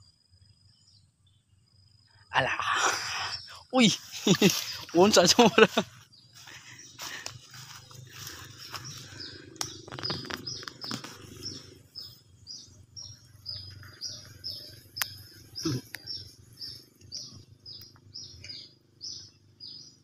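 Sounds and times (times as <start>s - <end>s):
clicks and rustles: 9.6s - 11.6s.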